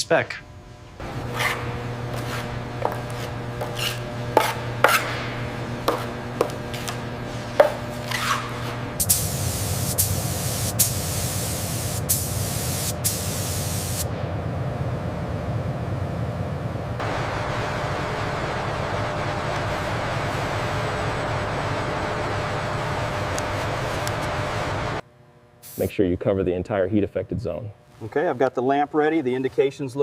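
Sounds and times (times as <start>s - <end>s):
steady hum: 0.0s - 29.0s
hissing spray: 9.0s - 14.1s, 25.6s - 25.9s.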